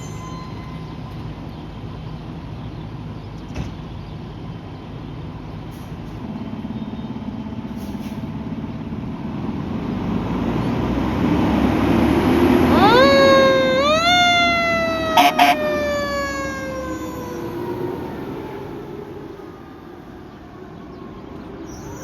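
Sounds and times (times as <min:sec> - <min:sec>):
fire engine diesel rumbling: 0:00.0 - 0:21.9
siren rising wail: 0:11.5 - 0:20.8.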